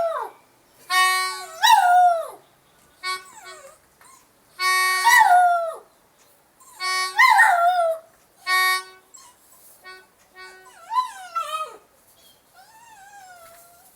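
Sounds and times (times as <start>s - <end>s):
harmonica-like instrument notes: 0.9s - 1.6s, 3.0s - 3.7s, 4.6s - 5.0s, 6.7s - 7.5s, 8.4s - 11.5s.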